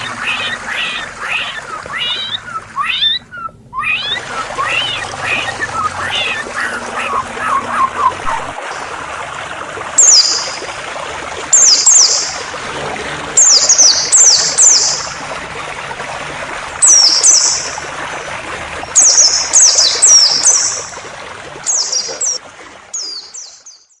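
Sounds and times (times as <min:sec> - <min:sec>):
songbird chirping: 0:00.0 - 0:08.6
flowing water: 0:00.0 - 0:24.0.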